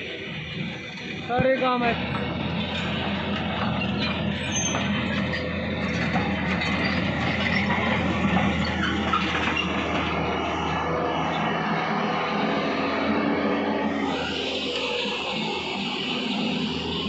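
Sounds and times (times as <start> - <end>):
heavy diesel engines running: 0.0 - 17.0
metallic clanking and squealing: 0.4 - 17.0.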